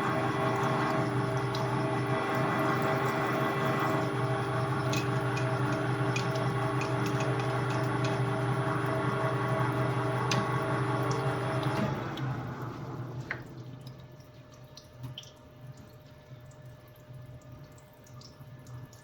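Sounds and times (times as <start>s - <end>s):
metal lathe humming: 0.0s - 11.9s.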